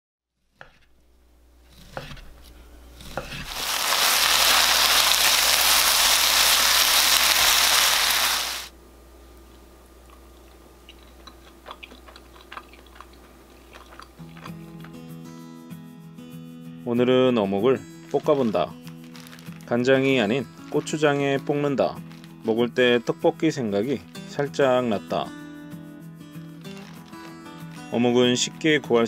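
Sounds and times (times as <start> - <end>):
knife chopping on cutting board: 3.1 - 3.5
food sizzling in hot pan: 3.2 - 8.7.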